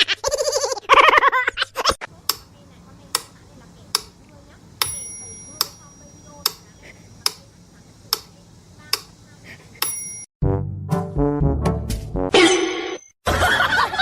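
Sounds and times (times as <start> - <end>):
sharp clock-like clicks: 2.2 - 9.2.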